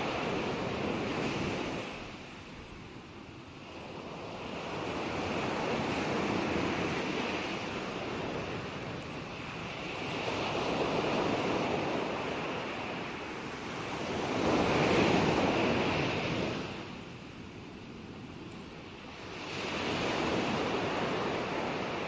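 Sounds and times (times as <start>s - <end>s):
ocean waves washing in: 0.0s - 17.8s, 18.8s - 22.0s.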